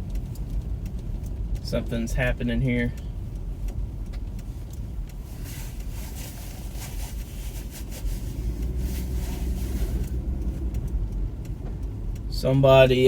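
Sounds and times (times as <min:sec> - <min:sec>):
car engine and road rumble: 0:00.0 - 0:13.0
light ticks and swishes: 0:00.0 - 0:13.0.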